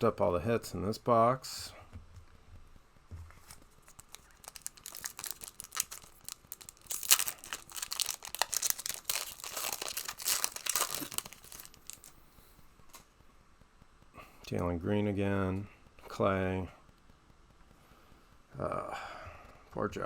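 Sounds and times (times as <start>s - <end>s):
plastic wrapper crinkling and tearing: 3.4s - 12.2s.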